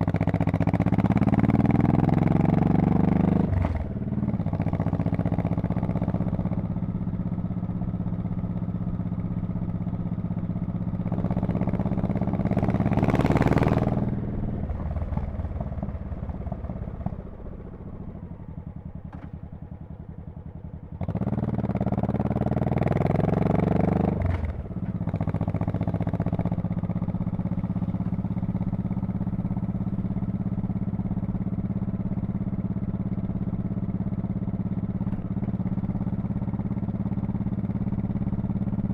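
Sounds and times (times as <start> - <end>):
motorcycle exhaust cruising: 0.0 - 38.9.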